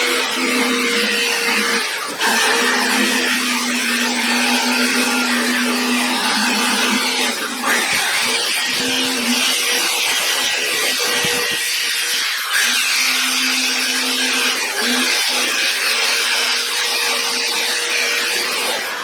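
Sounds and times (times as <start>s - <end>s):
electric drill motor whine: 0.0s - 19.0s.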